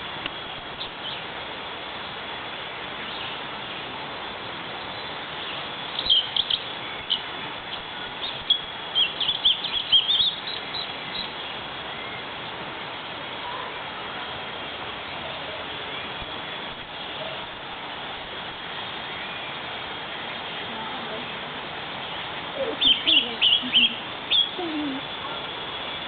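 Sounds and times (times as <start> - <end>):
steady hiss: 0.0 - 26.0
bird chirping: 4.8 - 12.2, 22.0 - 26.0.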